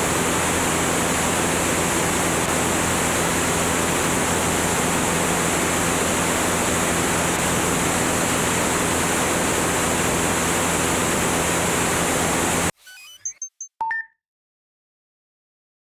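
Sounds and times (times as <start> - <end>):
aircraft engine and propeller drone: 0.0 - 12.7.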